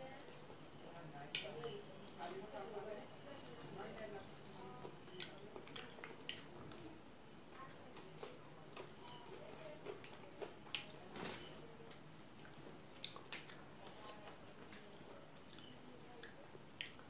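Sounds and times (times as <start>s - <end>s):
wet chewing mouth sounds: 4.8s - 6.9s, 12.3s - 17.0s.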